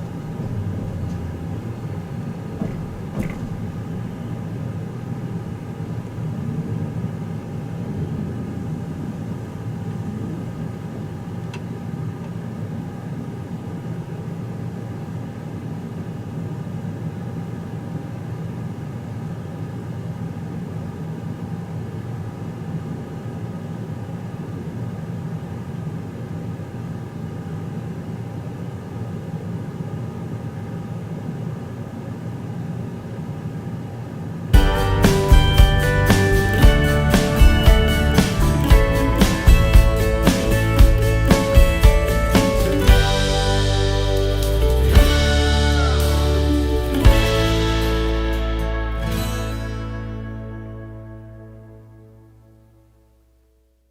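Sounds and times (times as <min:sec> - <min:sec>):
steady tones: 0:00.0 - 0:06.4, 0:34.5 - 0:52.2
train rumble and hum: 0:00.0 - 0:07.2.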